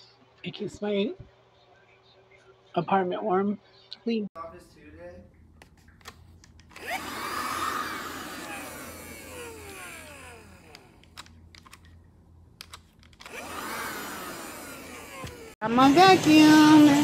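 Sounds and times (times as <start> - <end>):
handheld vacuum whining: 6.6 - 11.9, 12.6 - 17.0.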